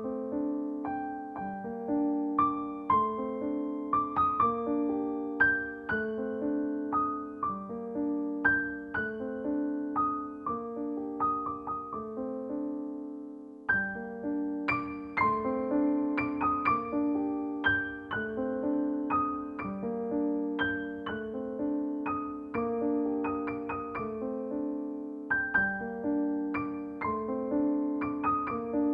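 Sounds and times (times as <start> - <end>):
slow solo piano: 0.0 - 28.9.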